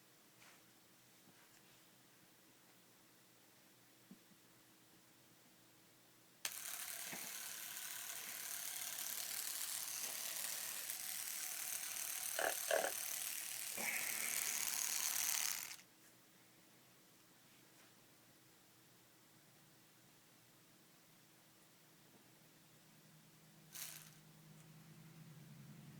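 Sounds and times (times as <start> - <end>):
tattoo machine buzzing: 6.5 - 15.8, 23.8 - 24.2.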